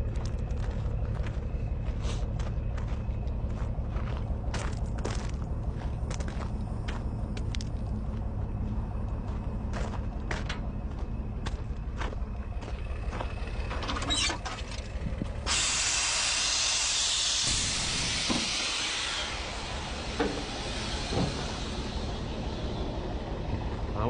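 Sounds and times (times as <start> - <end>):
diesel engine running: 0.0 - 24.0
loud air brake hiss: 15.4 - 23.2.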